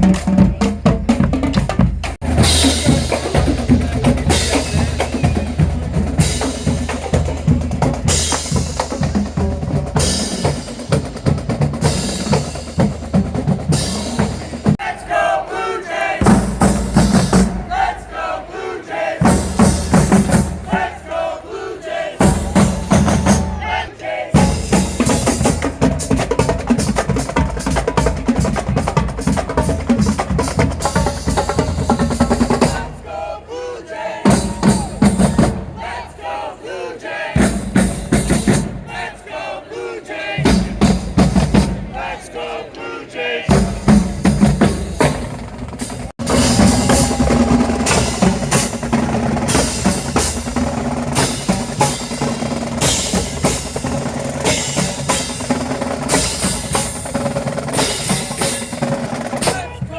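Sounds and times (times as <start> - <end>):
drums in driving rhythm: 0.0 - 15.0, 16.2 - 18.1, 19.2 - 21.3, 22.2 - 33.2, 34.2 - 36.2, 37.4 - 39.1, 40.3 - 42.2, 43.5 - 59.9
crowd cheering: 2.2 - 8.6, 14.4 - 26.5, 32.4 - 37.4, 38.8 - 40.8, 41.6 - 43.8, 46.2 - 52.2.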